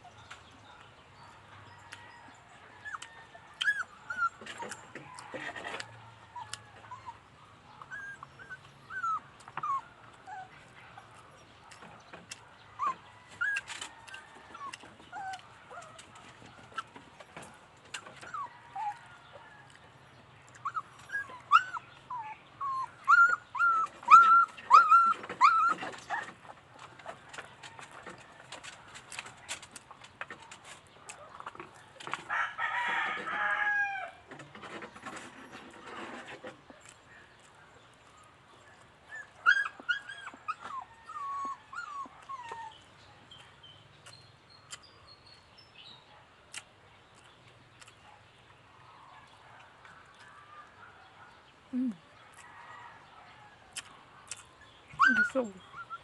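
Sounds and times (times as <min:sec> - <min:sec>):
dog whining: 0:02.8 - 0:04.9, 0:07.9 - 0:10.6, 0:12.8 - 0:16.0, 0:18.2 - 0:19.0, 0:20.6 - 0:26.3, 0:39.1 - 0:42.9, 0:55.0 - 0:56.0.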